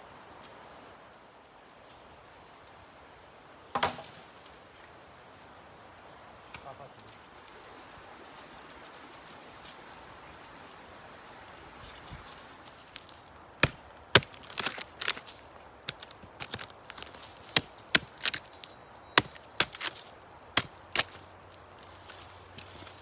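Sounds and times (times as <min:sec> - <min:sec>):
axe strikes chopping wood: 0:03.8 - 0:04.1, 0:13.6 - 0:15.2, 0:15.9 - 0:20.0, 0:20.6 - 0:21.2
wood splintering cracks: 0:12.8 - 0:23.0.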